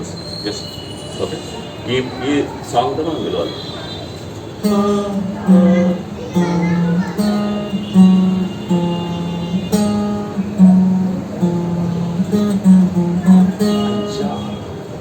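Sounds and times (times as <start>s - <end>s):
acoustic guitar plucked notes: 4.6s - 15.0s.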